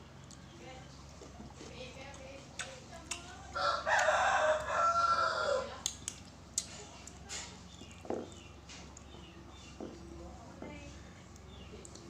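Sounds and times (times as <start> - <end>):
rooster crowing: 3.6 - 5.8.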